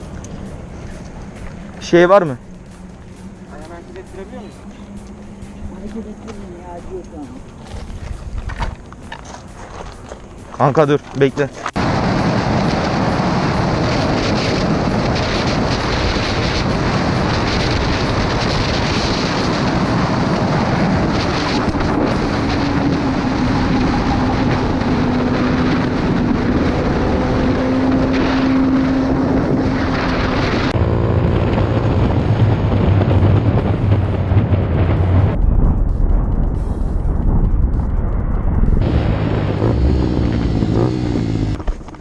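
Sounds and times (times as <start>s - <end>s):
wind rush on microphone: 0.0s - 42.0s
motorcycle engine rising in pitch: 11.8s - 41.9s.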